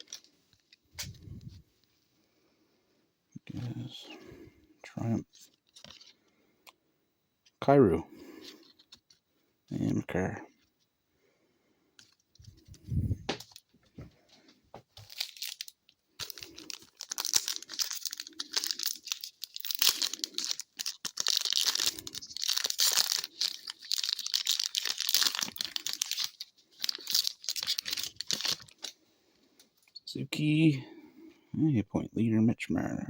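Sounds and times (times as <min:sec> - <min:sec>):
wrapper tearing and crinkling: 0:15.0 - 0:29.0.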